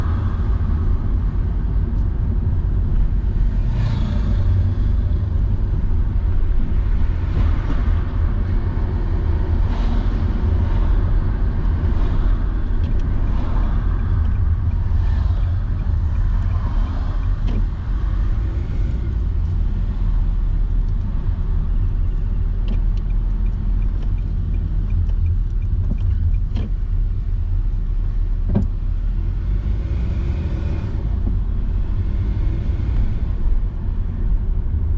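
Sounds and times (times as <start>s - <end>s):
car road and engine rumble: 0.0s - 34.9s.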